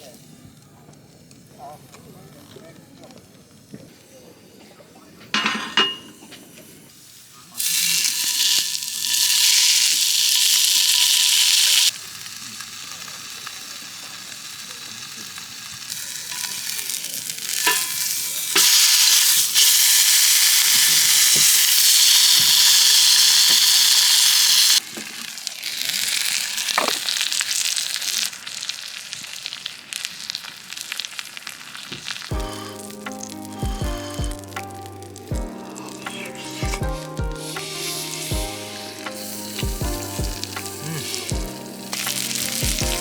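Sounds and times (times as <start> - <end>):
food sizzling in a hot pan: 5.9 - 43.0.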